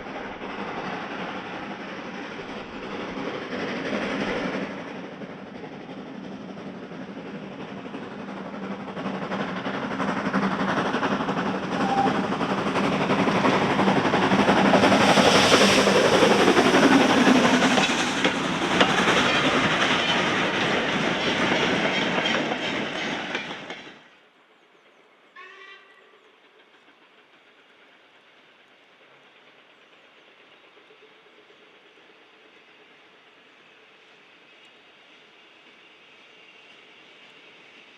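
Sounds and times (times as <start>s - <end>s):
train wheels clattering over rails: 0.0s - 24.0s.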